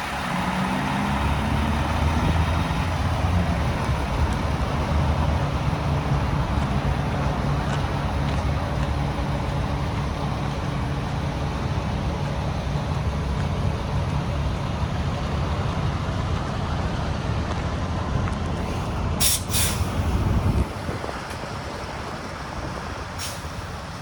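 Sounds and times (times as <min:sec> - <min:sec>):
diesel truck engine idling: 0:00.0 - 0:24.0
compressed air hisses: 0:18.6 - 0:20.1.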